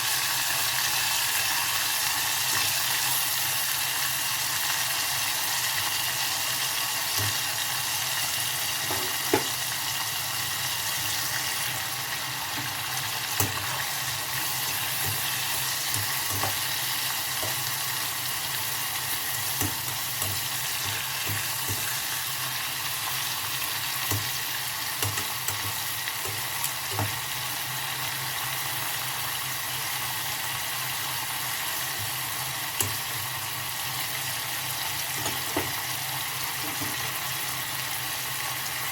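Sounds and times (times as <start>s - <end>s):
vegetables sizzling in a pan: 0.0s - 38.9s
utensil clicking against pan: 25.0s - 27.2s.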